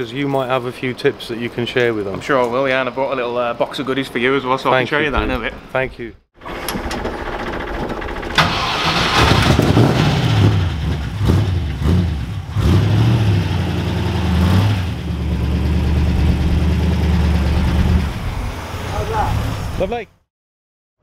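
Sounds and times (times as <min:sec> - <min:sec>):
car engine starting and revving: 0:06.4 - 0:20.0.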